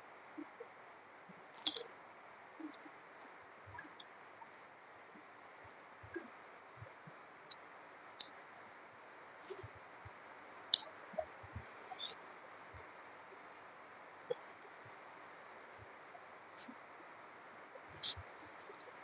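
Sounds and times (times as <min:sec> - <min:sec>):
faint steady hiss: 0:00.0 - 0:19.0
wet mouth clicks and smacks: 0:01.6 - 0:01.9.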